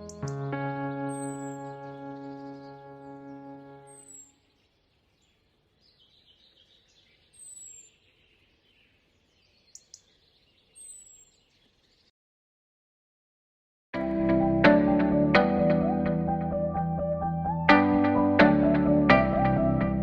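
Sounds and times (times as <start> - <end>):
held music chord: 0.0 - 4.2, 14.0 - 20.0
high bird chirps: 0.0 - 12.1.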